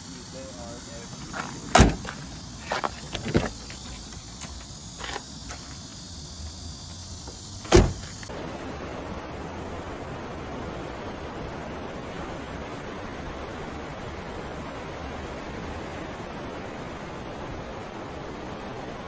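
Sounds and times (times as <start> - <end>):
sharp knocks and clunks: 1.2 - 5.6.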